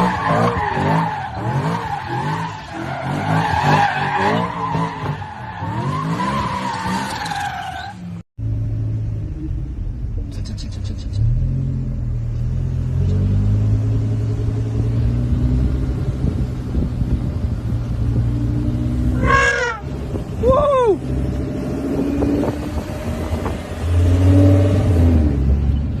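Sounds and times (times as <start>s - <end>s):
car engine drone: 0.0s - 26.0s.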